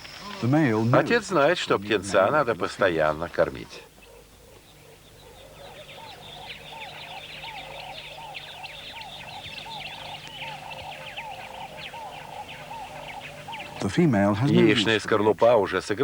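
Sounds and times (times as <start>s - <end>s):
bird calling arched notes: 3.3s - 15.1s.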